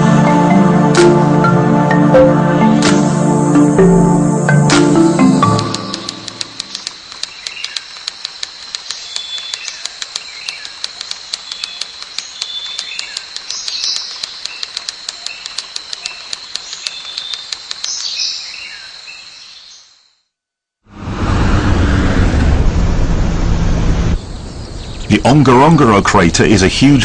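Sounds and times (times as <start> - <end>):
birds chirping: 3.8 - 20.0, 24.1 - 27.0
rapid regular clicking: 5.5 - 18.2.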